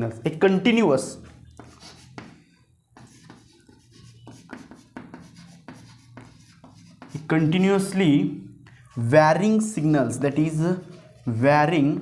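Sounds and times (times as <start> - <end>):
pen scratching while writing: 3.0 - 7.3.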